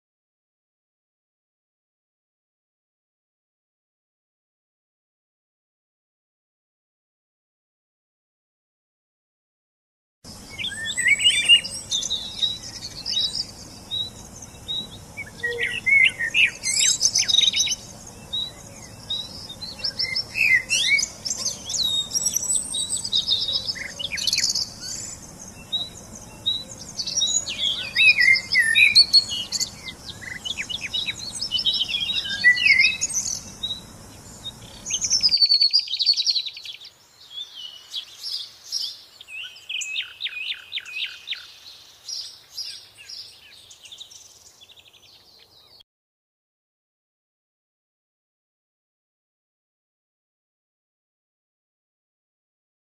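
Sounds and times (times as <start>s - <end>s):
background hiss: 10.3s - 45.5s
bird singing rapid repeated notes: 10.3s - 45.8s
songbirds chirping and singing: 10.3s - 45.8s.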